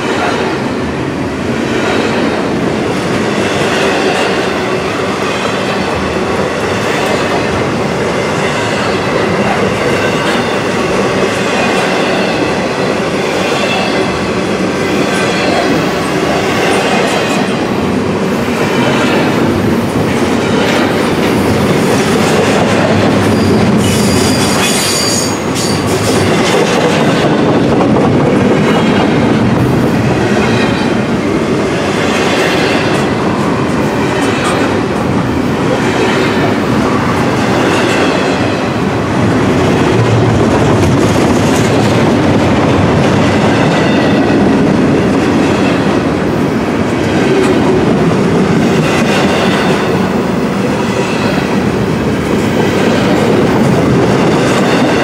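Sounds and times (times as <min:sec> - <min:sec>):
freight train rumbling past: 0:00.0 - 0:55.0
high wheel squeal: 0:23.3 - 0:25.9.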